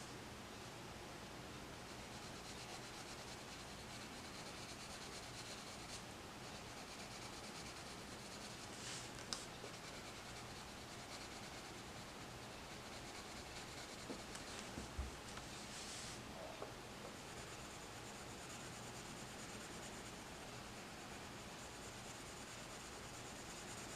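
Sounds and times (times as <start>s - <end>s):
coloured pencil scratching on paper: 1.9s - 14.5s, 17.1s - 23.9s.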